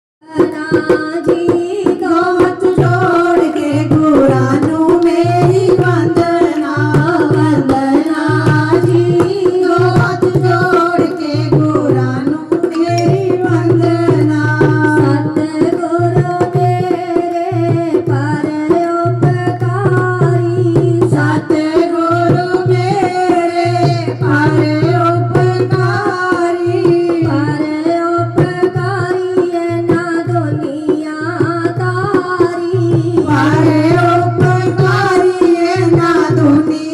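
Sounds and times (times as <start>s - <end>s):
fast hand-drum percussion: 0.2s - 36.9s
person singing: 0.3s - 20.0s.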